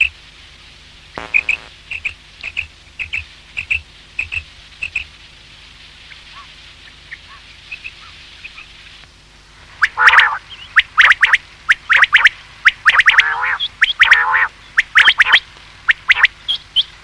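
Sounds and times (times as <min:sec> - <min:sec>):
quail calling: 0:09.8 - 0:16.9.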